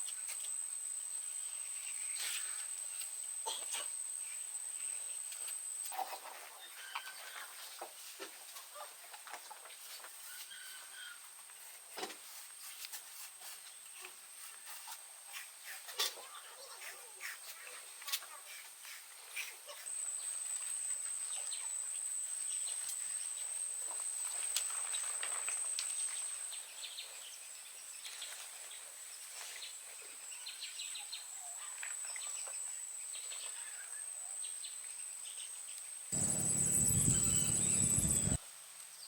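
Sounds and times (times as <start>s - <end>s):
bird chirps: 36.2s - 38.4s
insect buzzing: 36.2s - 38.4s
loud even noise: 36.2s - 38.4s.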